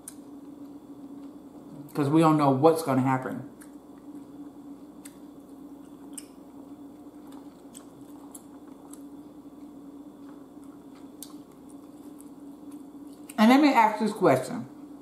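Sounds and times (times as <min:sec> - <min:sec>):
steady low hum: 0:00.0 - 0:15.0
wet chewing mouth clicks: 0:10.2 - 0:13.4.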